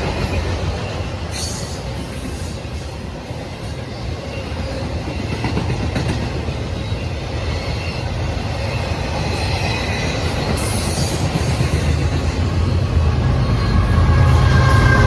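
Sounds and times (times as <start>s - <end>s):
train wheels rumbling on rails: 0.0s - 15.0s
faint high wheel squeal: 12.6s - 15.0s.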